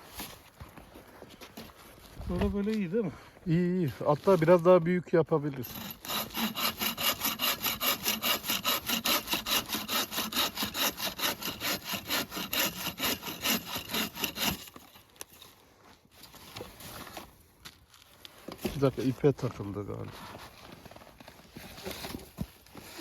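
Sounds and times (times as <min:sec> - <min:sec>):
hand saw cutting wood: 0:05.6 - 0:15.1.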